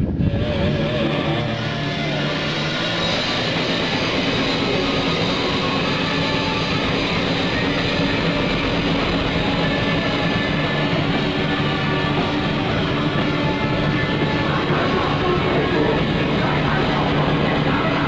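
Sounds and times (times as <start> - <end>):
harsh noise music: 0.0 - 18.0.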